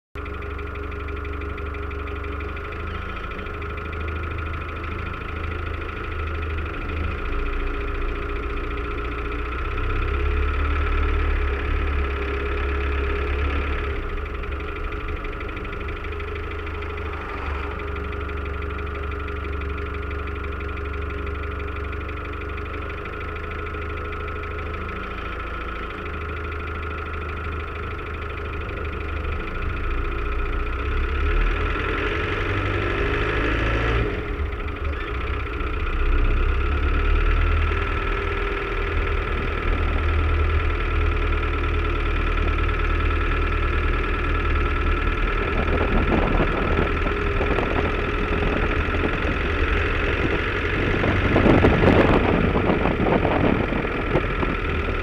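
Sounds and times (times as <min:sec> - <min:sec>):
car engine idling: 0:00.2 - 0:55.0.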